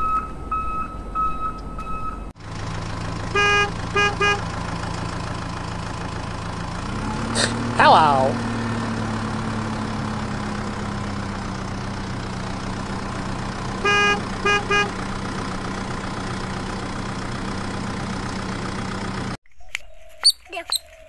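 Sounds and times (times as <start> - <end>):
truck engine running: 0.0 - 19.4
truck horn blasts: 3.2 - 4.8, 13.6 - 15.3.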